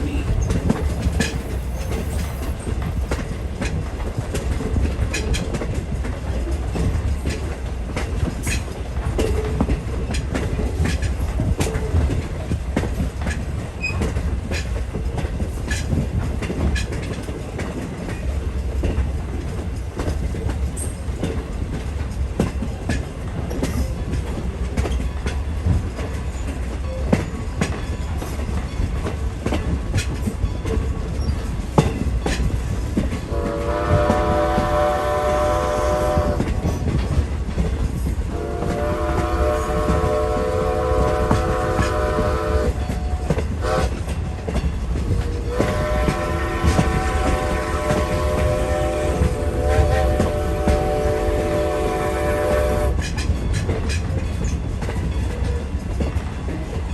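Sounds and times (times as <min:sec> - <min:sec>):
wheels clicking over rail joints: 0:00.0 - 0:51.8, 0:52.5 - 0:56.9
train rumble: 0:00.0 - 0:56.9.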